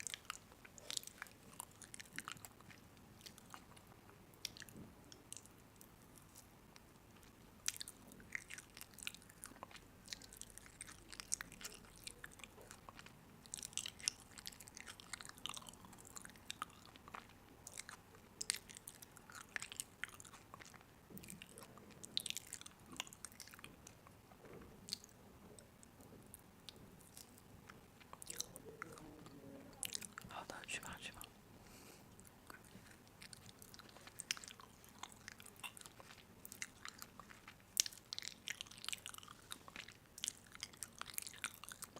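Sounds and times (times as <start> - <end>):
person chewing crunchy food: 0.0 - 41.9.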